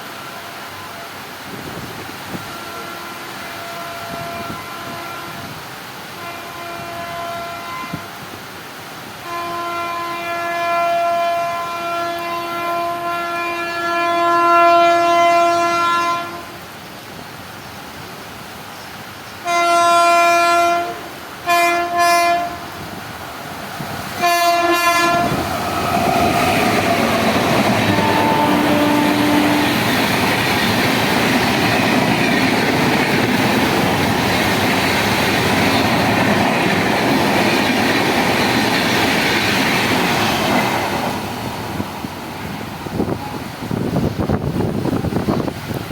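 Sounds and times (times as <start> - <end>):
train rumbling past: 0.0 - 45.9
train horn blasts: 2.3 - 8.2, 9.2 - 16.6, 19.4 - 23.0, 24.1 - 30.1
wheel clatter on rails: 25.4 - 41.0.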